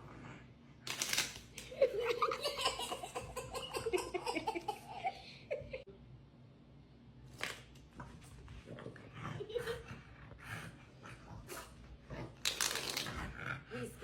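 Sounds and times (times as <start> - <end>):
playing cards riffling: 0.9 - 1.7
person giggling: 1.7 - 5.9.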